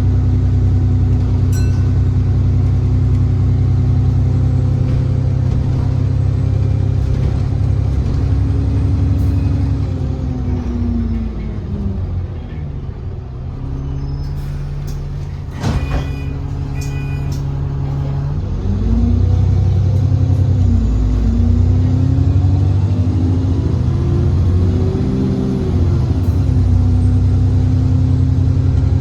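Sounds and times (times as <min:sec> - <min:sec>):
bus engine: 0:00.0 - 0:29.0
short beeps: 0:01.6 - 0:02.1.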